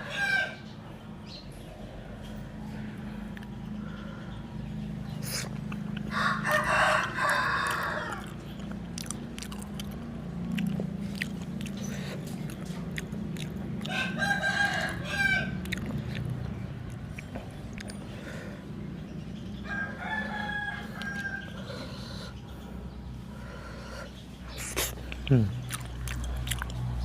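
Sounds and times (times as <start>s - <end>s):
rooster crowing: 0.0s - 0.7s, 6.1s - 8.4s, 13.8s - 15.8s, 19.6s - 22.2s
chewing clicks: 3.3s - 3.6s, 5.1s - 6.2s, 7.2s - 18.4s, 20.8s - 22.0s, 24.4s - 27.0s.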